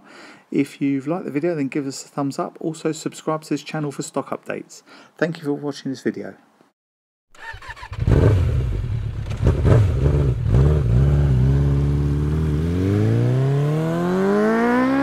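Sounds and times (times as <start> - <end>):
motorcycle engine revving: 7.4 - 15.0.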